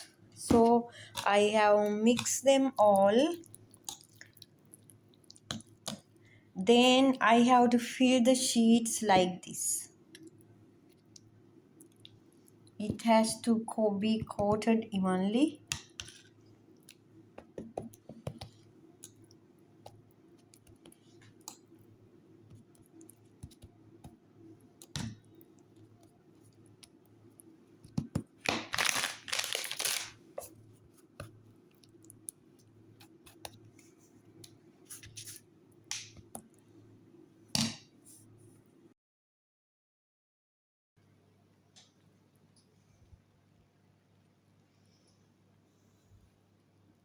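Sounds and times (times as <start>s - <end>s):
pastry sheets clicking and scraping: 15.6s - 21.8s, 27.8s - 32.4s, 33.0s - 36.4s
pastry crinkling rustle: 28.0s - 32.2s.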